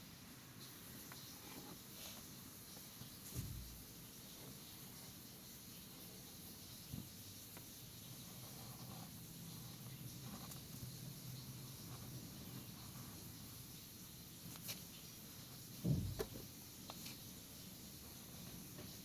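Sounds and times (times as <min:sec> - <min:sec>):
pen scratching on paper: 0:07.5 - 0:13.8.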